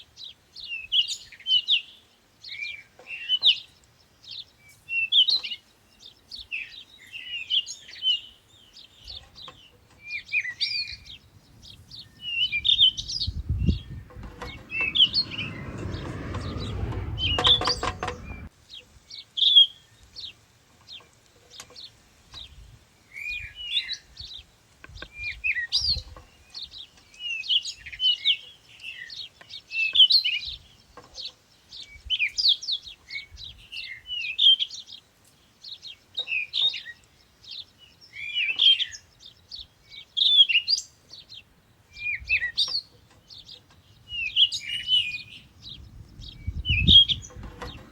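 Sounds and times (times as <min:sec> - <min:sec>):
songbirds chirping: 0:00.0 - 0:47.9
low rumble: 0:11.0 - 0:18.5.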